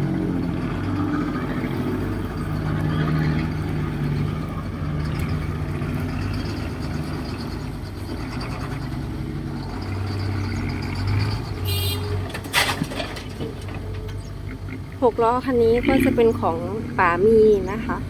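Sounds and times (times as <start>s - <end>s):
heavy diesel engines running: 0.0s - 18.0s.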